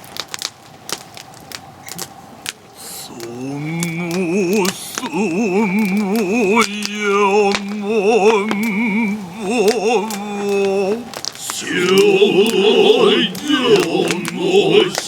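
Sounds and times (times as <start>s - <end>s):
male chorus chanting: 2.8s - 15.0s.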